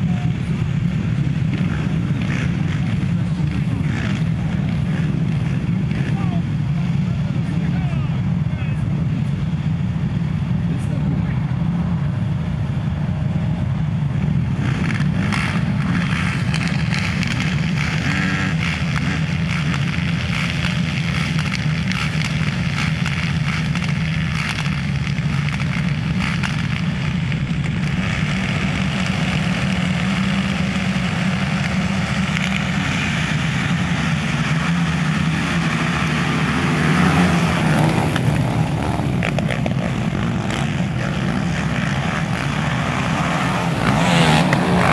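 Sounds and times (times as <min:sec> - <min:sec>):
quad engines droning: 0:00.0 - 0:44.9.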